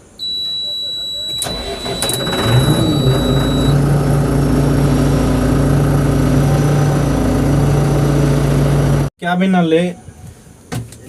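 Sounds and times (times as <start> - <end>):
high-pitched warning tone: 0.0 - 3.8, 6.3 - 8.2
diesel engine idling: 0.2 - 9.1.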